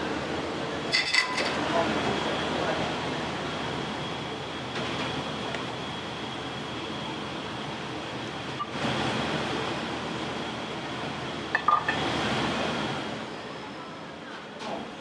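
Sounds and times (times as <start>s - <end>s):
dishes clinking: 0.9s - 1.7s.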